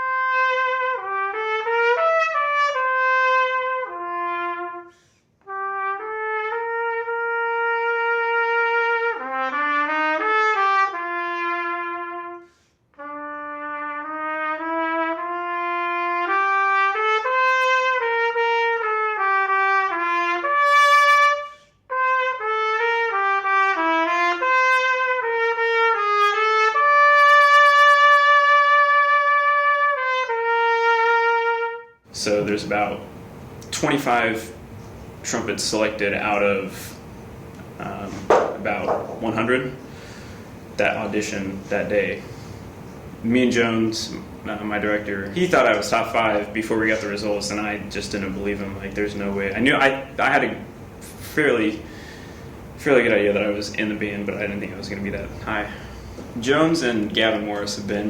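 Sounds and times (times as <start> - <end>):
solo trumpet melody: 0.0 - 35.2
player breathing: 39.8 - 40.7, 42.2 - 42.9, 51.8 - 52.7, 55.7 - 56.4.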